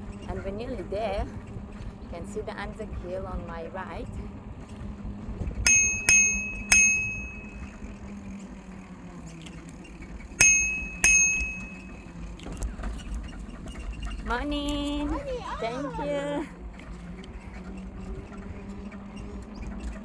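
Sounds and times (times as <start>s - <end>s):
bicycle riding rumble: 0.0s - 20.0s
bicycle bell ringing: 5.7s - 8.3s, 10.4s - 12.3s.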